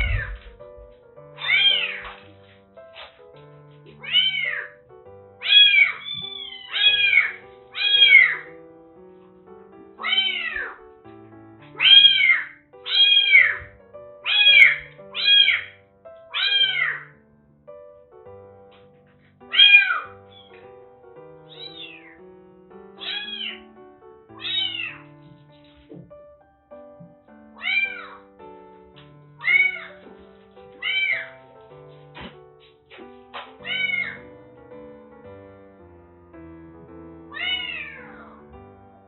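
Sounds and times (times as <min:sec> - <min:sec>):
kittens meowing: 0:00.0 - 0:00.6, 0:01.4 - 0:02.2, 0:04.0 - 0:04.8, 0:05.4 - 0:08.5, 0:10.0 - 0:10.8, 0:11.8 - 0:13.7, 0:14.3 - 0:17.1, 0:19.5 - 0:20.6, 0:21.5 - 0:22.2, 0:23.0 - 0:23.7, 0:24.4 - 0:25.2, 0:27.6 - 0:28.2, 0:29.4 - 0:30.0, 0:30.8 - 0:31.4, 0:33.6 - 0:34.3, 0:37.3 - 0:38.4
soft background music: 0:00.0 - 0:39.0.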